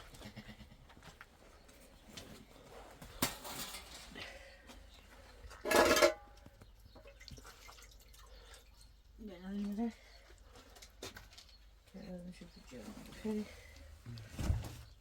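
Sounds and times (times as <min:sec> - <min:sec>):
household objects clattering: 0:05.6 - 0:06.3.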